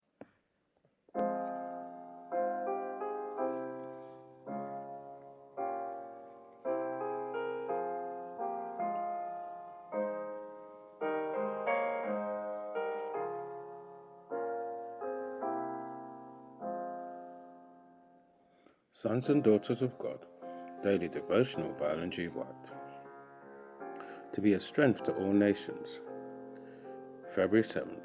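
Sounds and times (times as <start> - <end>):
slow piano chords: 1.1 - 28.0.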